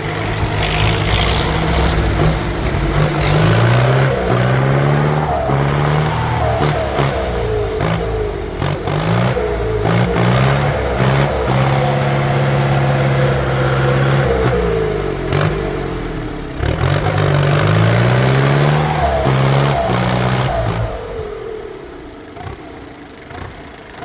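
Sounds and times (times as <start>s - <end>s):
sharp metallic clanks: 0.0s - 6.6s
diesel engine revving: 0.0s - 24.0s.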